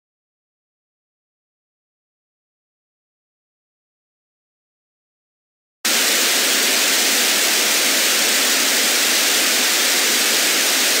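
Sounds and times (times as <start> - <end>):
loud static hiss: 5.9 - 11.0.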